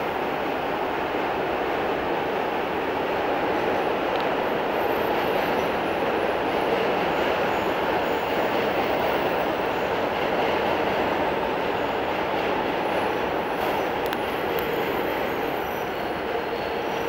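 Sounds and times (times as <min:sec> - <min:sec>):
subway train rumbling on rails: 0:00.0 - 0:17.0
faint high wheel squeals: 0:04.7 - 0:10.1, 0:12.9 - 0:17.0.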